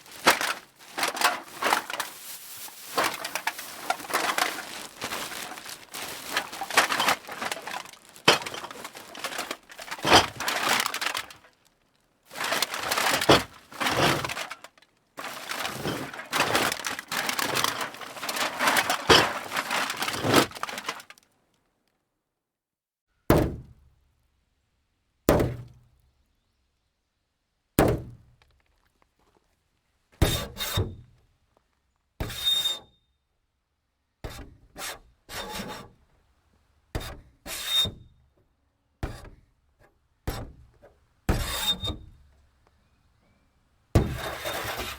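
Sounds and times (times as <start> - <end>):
metal cans clattering: 0.0 - 11.6, 12.3 - 21.2, 44.0 - 44.9.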